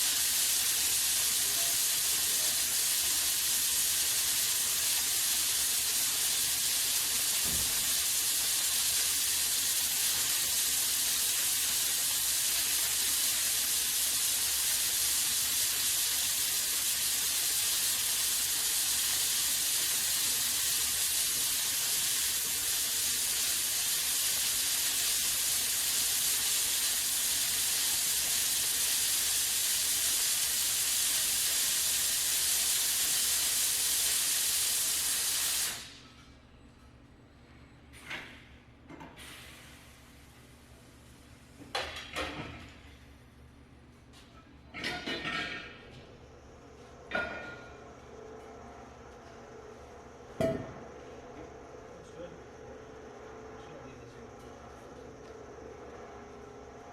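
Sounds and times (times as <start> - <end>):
welding arc hissing: 0.0 - 36.0, 39.2 - 41.2.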